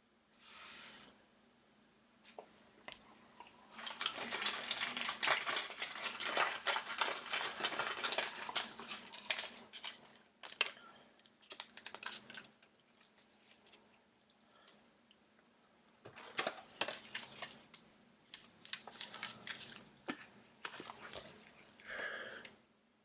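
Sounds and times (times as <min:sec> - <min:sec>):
plastic sleeves rustling: 0:03.6 - 0:10.8, 0:11.4 - 0:14.8, 0:16.0 - 0:22.5.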